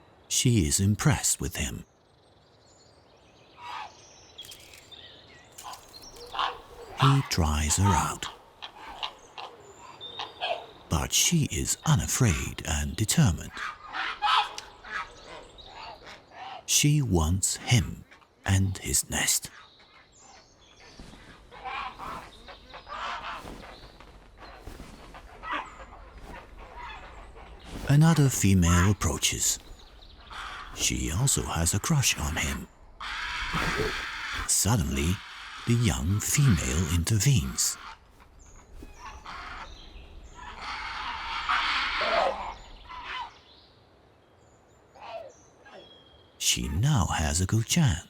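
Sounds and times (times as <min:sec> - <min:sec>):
herons rasping calls: 0:05.6 - 0:19.4, 0:25.3 - 0:38.0, 0:39.0 - 0:43.3.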